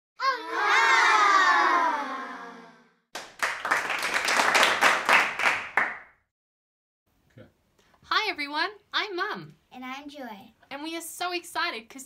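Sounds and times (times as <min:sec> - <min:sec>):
applause: 0:03.1 - 0:06.2.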